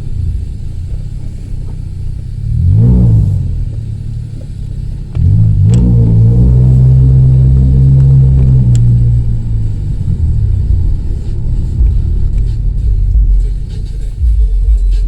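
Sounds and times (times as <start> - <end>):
loud car exhaust drone: 0.0 - 15.0.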